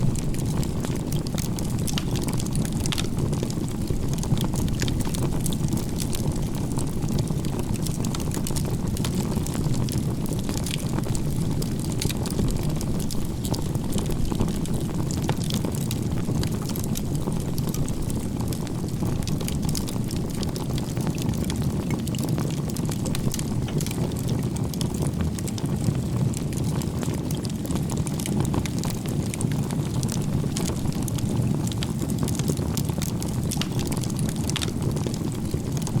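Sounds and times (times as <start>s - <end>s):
fire rushing: 0.0s - 36.0s
firewood crackling and popping: 0.0s - 36.0s.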